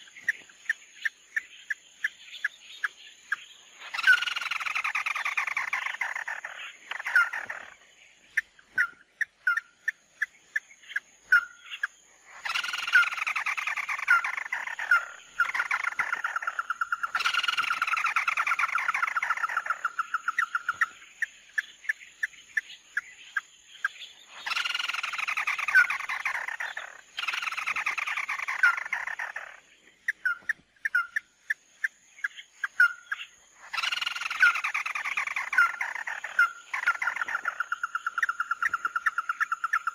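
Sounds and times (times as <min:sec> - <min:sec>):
recorded bird calls: 0:00.0 - 0:39.9.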